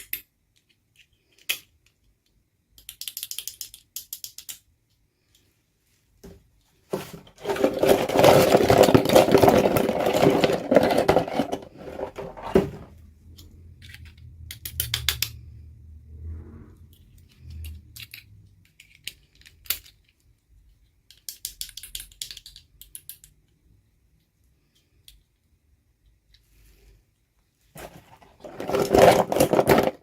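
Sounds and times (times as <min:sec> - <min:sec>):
plastic toy pieces clicking: 0:00.0 - 0:05.5, 0:13.3 - 0:15.4, 0:16.9 - 0:23.6
rustling handling noise: 0:05.4 - 0:13.0, 0:27.6 - 0:30.0.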